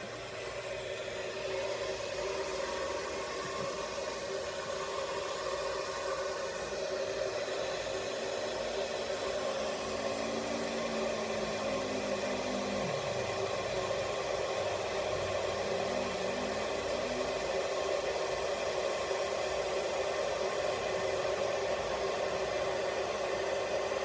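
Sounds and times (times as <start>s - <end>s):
electric kettle heating water: 0.0s - 24.0s.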